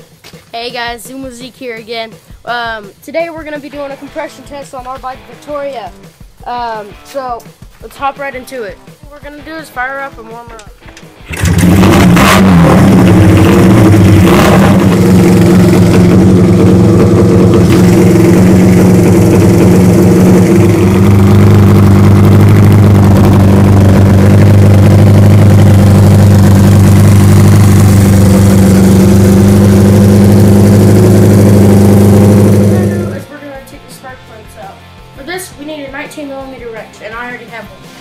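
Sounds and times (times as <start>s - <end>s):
motorcycle throttle blips: 10.9s - 33.3s
motorcycle engine idling: 11.2s - 33.3s.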